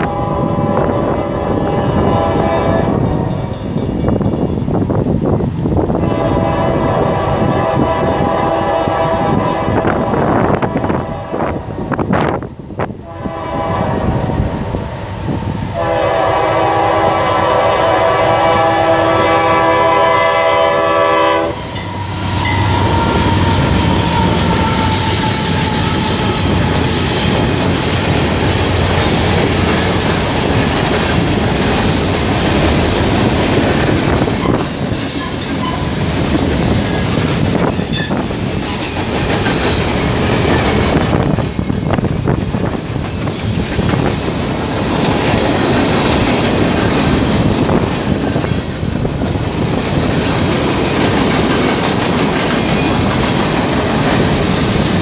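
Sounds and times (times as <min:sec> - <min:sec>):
train horn blast: 0:00.0 - 0:03.6, 0:06.0 - 0:11.8, 0:13.0 - 0:27.4
diesel locomotives passing: 0:00.0 - 0:55.0.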